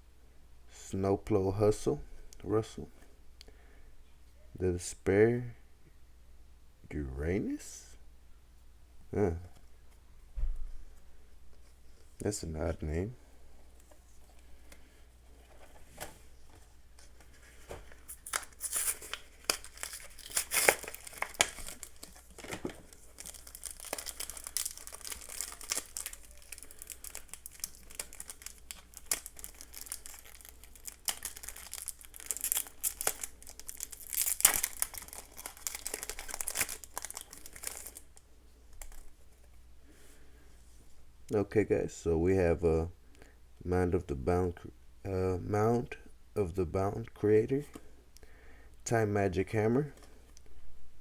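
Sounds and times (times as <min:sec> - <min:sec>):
foil wrapper crinkling and tearing: 0:17.6 - 0:39.1.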